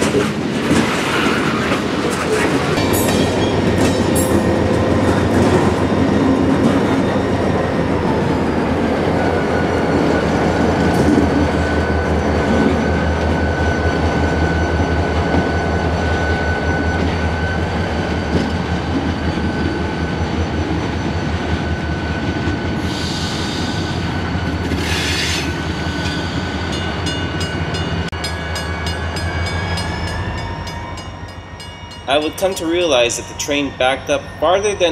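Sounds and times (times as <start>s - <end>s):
train wheel squeal: 0.0s - 8.6s, 9.2s - 34.9s
diesel locomotive engine drone: 0.0s - 34.9s
short hissing bursts: 24.8s - 25.5s.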